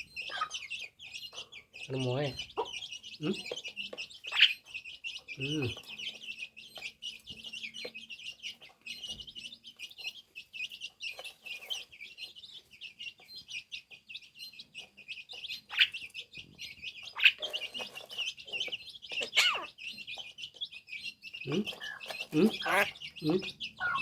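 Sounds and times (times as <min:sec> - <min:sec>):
bird twittering: 0:00.0 - 0:24.0
downward-sweeping bird calls: 0:15.3 - 0:24.0.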